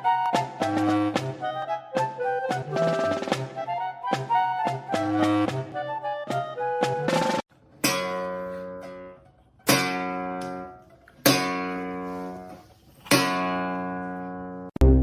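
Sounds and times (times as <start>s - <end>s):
acoustic guitar chords strummed: 14.8s - 15.0s.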